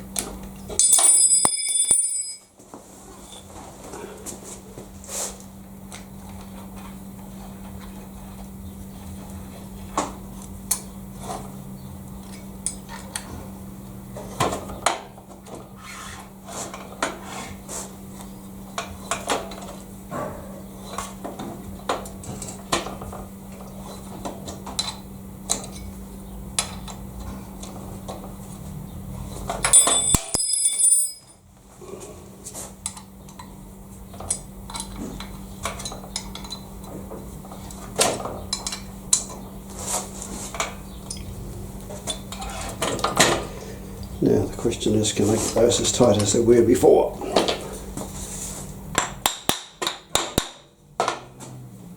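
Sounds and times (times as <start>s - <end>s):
light metallic clinks and knocks: 0.8s - 2.5s
ringing metal clatter: 0.8s - 2.5s, 29.7s - 31.4s
steady low hum: 31.4s - 51.0s.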